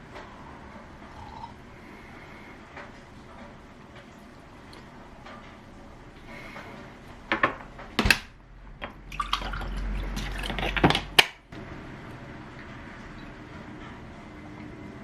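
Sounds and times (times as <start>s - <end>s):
kitchenware clattering: 7.3s - 8.2s.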